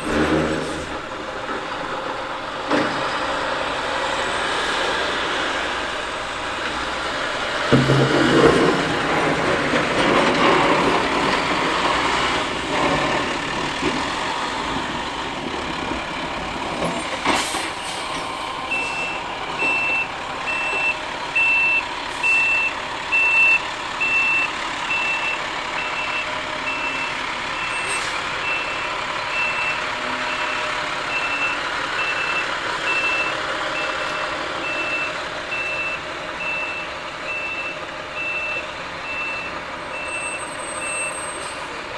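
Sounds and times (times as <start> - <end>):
truck engine running: 0.0 - 41.9
backup alarm beeping: 18.7 - 27.2, 28.4 - 41.4.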